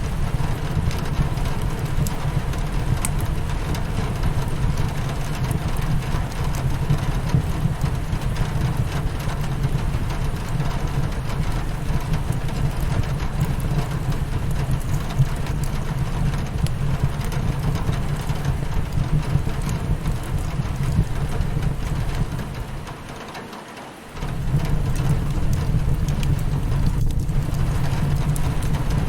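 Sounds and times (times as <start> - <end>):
fireplace crackling: 0.0 - 23.1, 24.1 - 29.0
rain pattering on window: 0.0 - 29.0
deep low rumble: 24.2 - 29.0.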